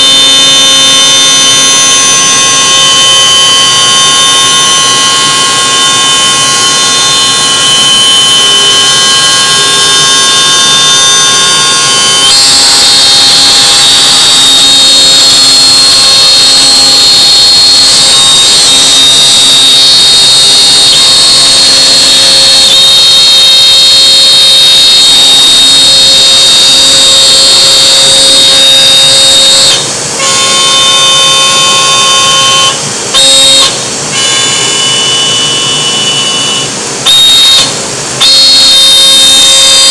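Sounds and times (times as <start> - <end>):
router spindle whining: 0.0 - 14.8, 28.2 - 39.9.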